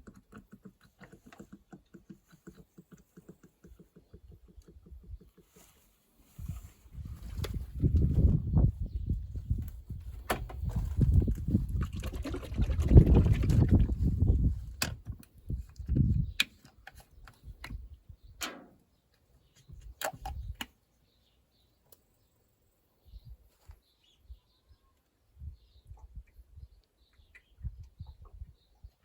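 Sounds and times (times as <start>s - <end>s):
oil pouring: 11.2s - 14.4s.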